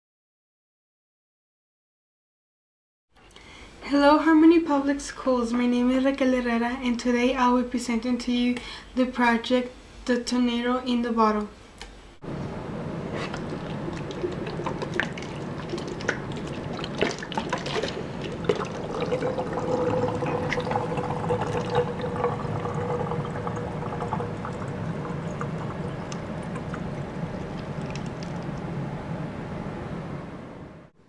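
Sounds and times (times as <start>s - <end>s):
water pouring into a bottle: 13.3s - 28.7s.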